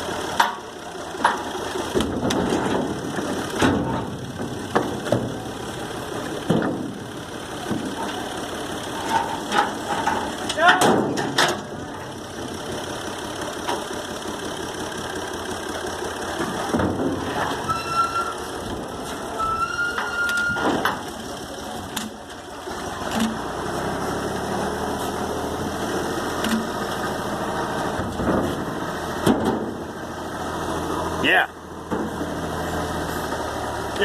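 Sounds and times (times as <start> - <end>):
tractor engine running: 0.0 - 34.0
sharp knocks and clunks: 1.2 - 5.5, 6.4 - 7.0, 7.6 - 8.2, 9.0 - 11.8, 16.4 - 17.6, 27.9 - 29.8, 31.9 - 32.3
high squeal: 17.6 - 18.5, 19.3 - 20.7.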